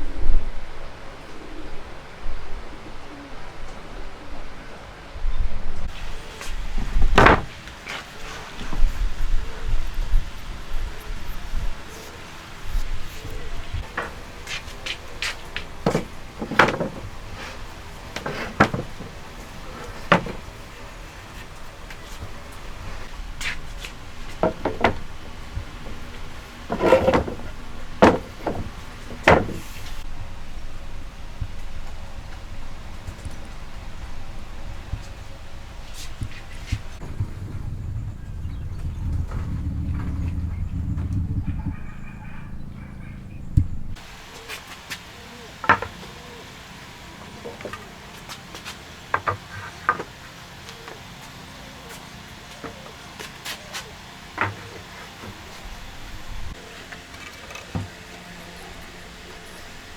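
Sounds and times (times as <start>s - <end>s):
wooden knocks and clatter: 5.9s - 30.1s
wooden rattle: 5.9s - 41.4s, 45.5s - 46.4s, 48.9s - 50.9s, 54.4s - 59.8s
low steady rumble: 8.6s - 44.2s.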